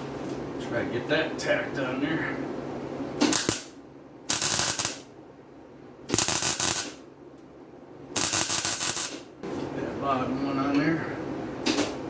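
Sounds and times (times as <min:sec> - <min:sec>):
arc welder crackling sizzle: 0:03.2 - 0:05.1, 0:06.1 - 0:07.1, 0:08.1 - 0:09.3.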